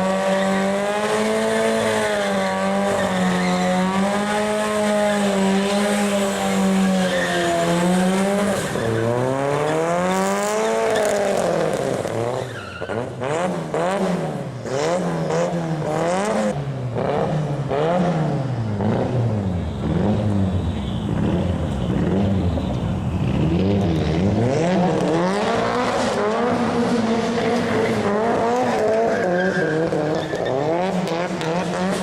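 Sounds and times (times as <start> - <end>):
car engine revving: 0.0 - 32.0
tyre squeal: 5.1 - 11.4, 12.3 - 13.1, 28.8 - 30.8.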